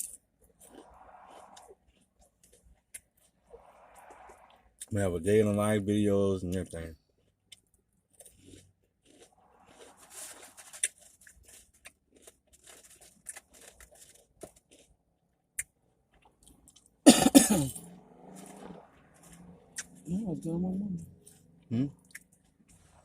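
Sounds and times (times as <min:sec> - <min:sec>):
person chewing: 0:00.1 - 0:03.5, 0:07.0 - 0:17.1, 0:17.7 - 0:20.1, 0:21.1 - 0:23.0
person coughing: 0:17.1 - 0:17.8.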